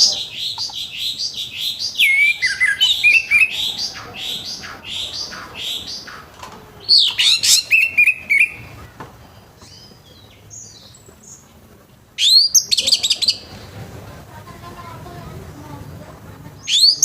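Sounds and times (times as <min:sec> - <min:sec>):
thrush singing trills: 0:00.0 - 0:17.0.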